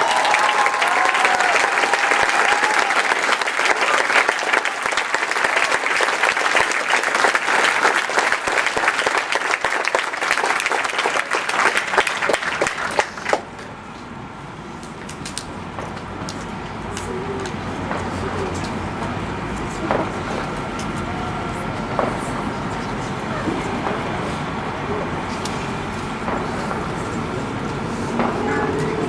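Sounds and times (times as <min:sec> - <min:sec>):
crowd applauding: 0:00.0 - 0:13.6.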